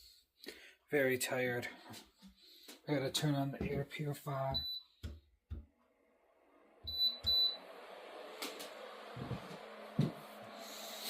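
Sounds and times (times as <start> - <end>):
air purifier beeping: 4.5 - 5.2, 6.8 - 10.6
fan rushing air: 7.3 - 11.0.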